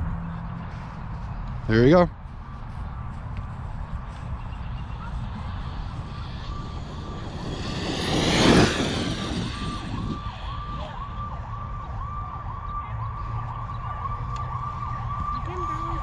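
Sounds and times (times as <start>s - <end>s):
repeating siren-like tone: 4.4s - 16.0s
rc truck motor whine passing: 5.0s - 10.7s.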